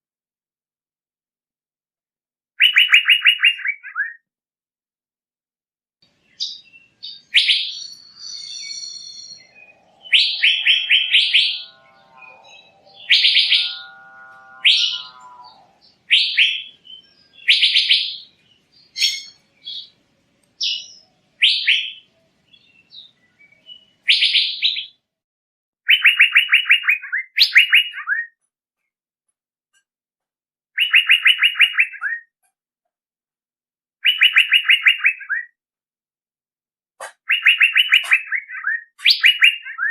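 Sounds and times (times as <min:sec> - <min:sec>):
bird trilled calls: 0:06.4 - 0:19.9, 0:25.9 - 0:28.3, 0:30.8 - 0:32.3, 0:34.0 - 0:35.5, 0:37.0 - 0:39.9.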